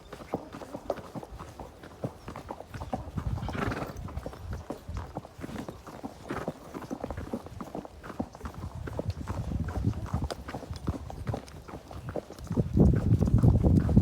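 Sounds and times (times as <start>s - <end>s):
horse hooves clip-clopping: 0.0s - 14.0s
horse breathy snort: 3.3s - 4.1s.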